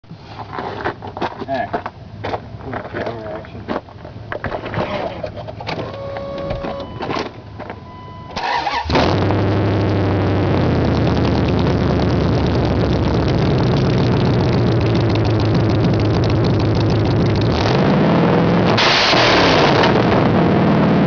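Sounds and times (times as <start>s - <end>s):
engine cranking and starting: 8.4s - 10.0s
loud engine running: 8.5s - 21.0s.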